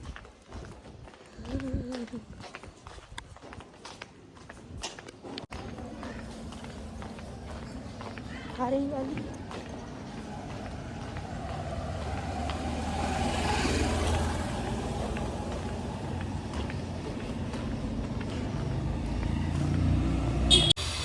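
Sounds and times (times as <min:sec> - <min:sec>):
road traffic passing: 0:05.4 - 0:21.0
engine low rumble: 0:05.5 - 0:21.0.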